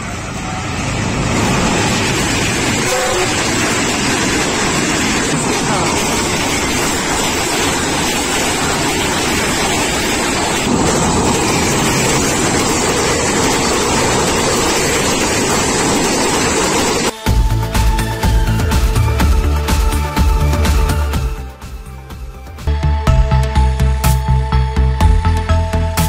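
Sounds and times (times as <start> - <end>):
train wheels rolling on rails: 0.0 - 17.2.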